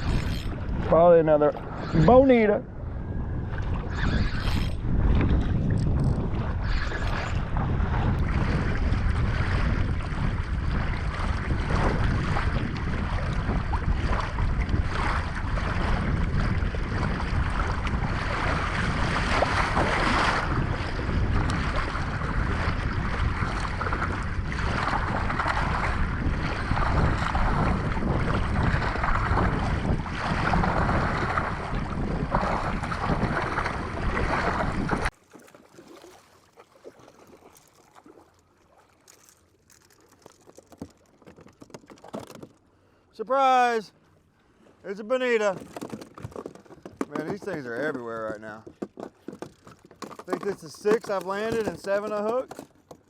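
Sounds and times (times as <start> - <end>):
wind noise on microphone: 0.0 - 35.2
water washing against hull: 0.0 - 53.0.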